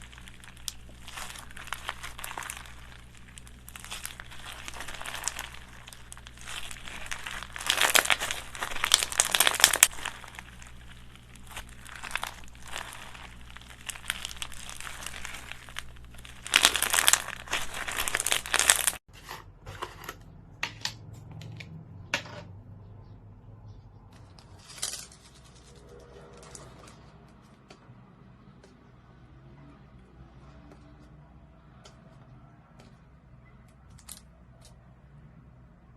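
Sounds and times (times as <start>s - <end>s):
slime squished and crackling: 0.0s - 19.0s.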